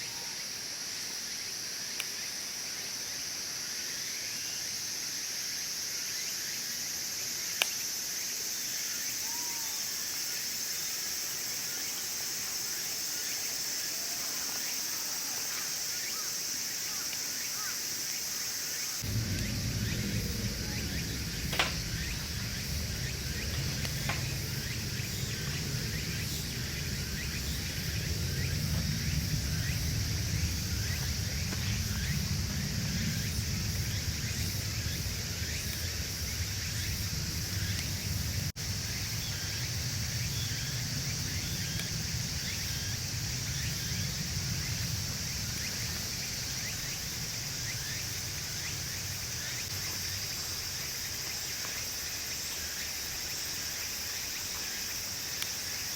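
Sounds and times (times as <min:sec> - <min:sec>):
insects chirping: 0:00.0 - 0:55.9
flames rumbling: 0:18.9 - 0:55.9
wood fire crackling: 0:19.0 - 0:55.9.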